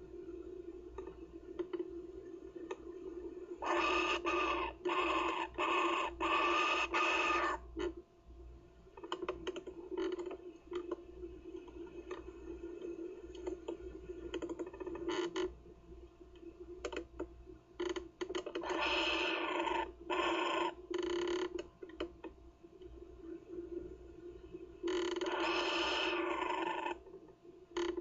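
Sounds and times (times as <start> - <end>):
kookaburra chick harsh calls: 3.6 - 7.6.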